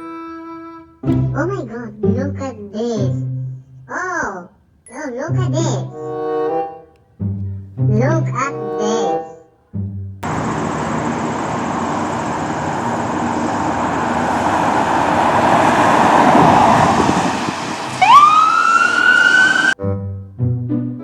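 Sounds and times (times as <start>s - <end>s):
emergency vehicle siren wailing: 10.2s - 19.8s
loud rushing noise: 10.2s - 19.8s.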